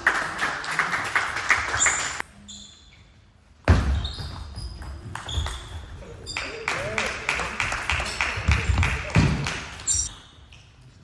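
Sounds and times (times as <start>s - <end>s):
short high squeaks: 1.8s - 3.2s.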